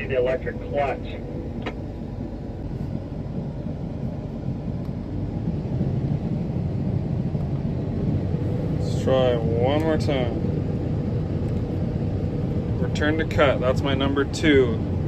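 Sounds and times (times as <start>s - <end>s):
combine harvester droning: 0.0s - 15.0s.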